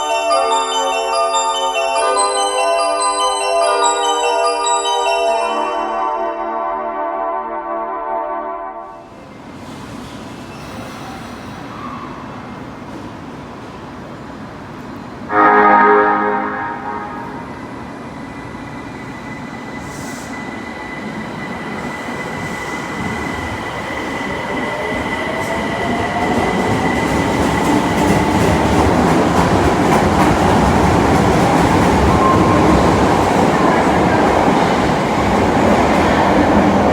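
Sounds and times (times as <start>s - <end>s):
wheels rumbling on rail: 17.4s - 36.9s.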